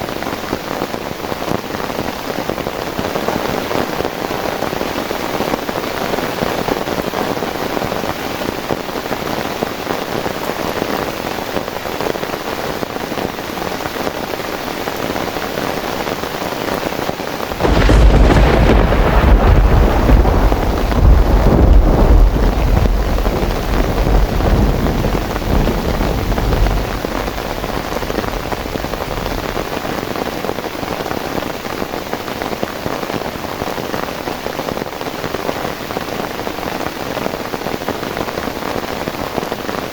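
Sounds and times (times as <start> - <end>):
heavy rain: 0.0 - 39.9
thunder crack and rumble: 17.5 - 31.2.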